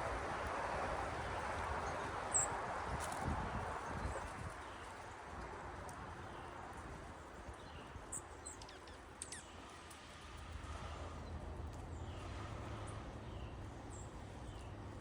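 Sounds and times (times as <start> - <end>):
songbirds chirping: 6.1 - 9.8, 11.2 - 15.0.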